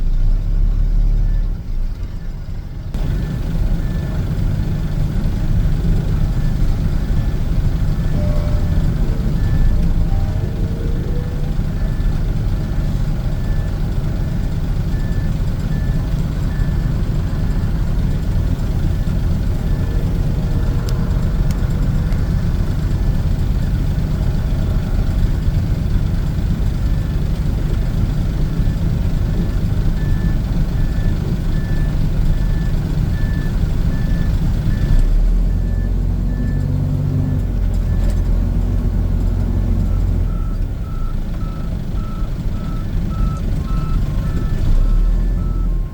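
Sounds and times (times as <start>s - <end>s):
diesel truck engine running: 0.0s - 45.9s
reversing beeper: 5.8s - 17.8s, 18.8s - 23.8s, 39.6s - 45.9s.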